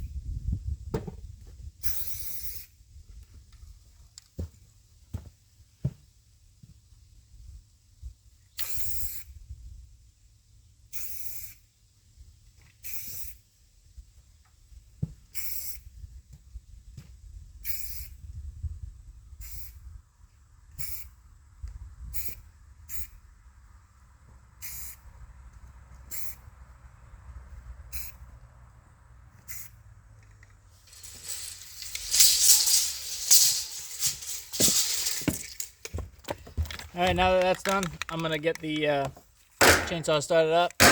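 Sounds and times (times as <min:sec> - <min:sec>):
spray paint can hissing: 0:30.8 - 0:35.7.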